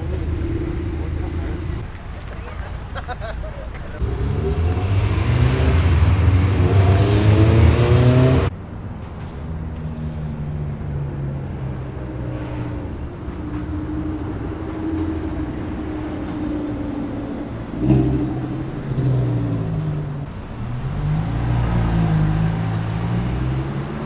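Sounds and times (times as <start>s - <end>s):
car engine revving hard: 4.0s - 8.5s.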